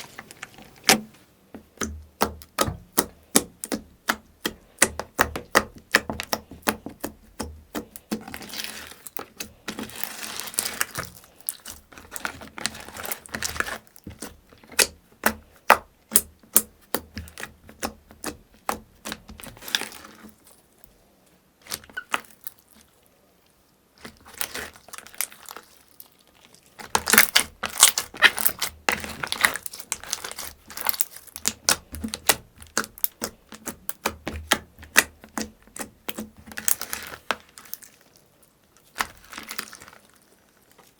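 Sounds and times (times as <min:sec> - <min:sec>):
slime squelching with sticky clicks: 0:01.6 - 0:20.4, 0:26.5 - 0:38.0.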